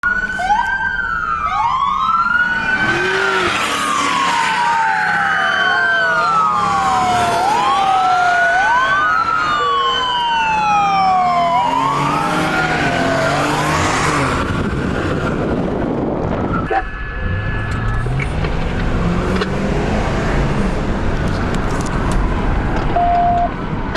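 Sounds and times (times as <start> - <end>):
passing vehicles: 0.0 - 23.9
police sirens wailing: 0.0 - 23.9.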